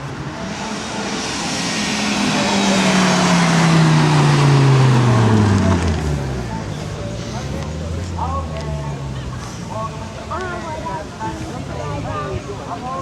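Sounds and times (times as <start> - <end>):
car driving past at speed: 0.0 - 9.8.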